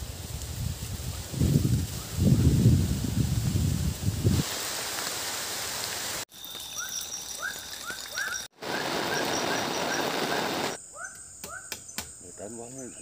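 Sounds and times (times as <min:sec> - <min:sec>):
high insect drone: 0:06.3 - 0:12.7
pulsing insect calls: 0:06.3 - 0:13.0
birds chirping: 0:06.4 - 0:13.0.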